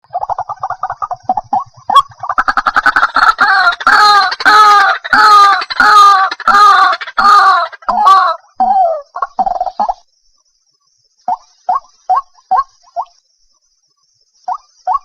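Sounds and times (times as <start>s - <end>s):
waterhen clucking notes: 0.0s - 10.0s, 11.3s - 13.2s, 14.5s - 15.0s
waterhen loud falling calls: 0.1s - 10.0s.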